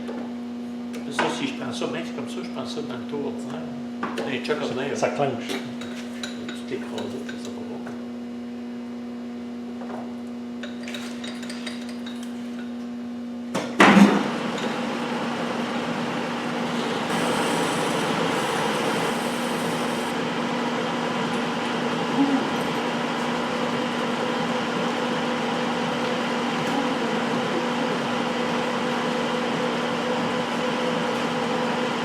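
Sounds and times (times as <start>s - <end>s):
lathe humming: 14.8s - 32.0s.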